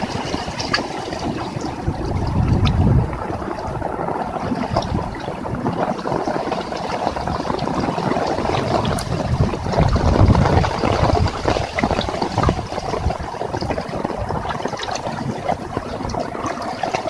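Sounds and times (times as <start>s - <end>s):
heavy rain falling: 0.0s - 17.0s
low rumble: 1.1s - 6.0s.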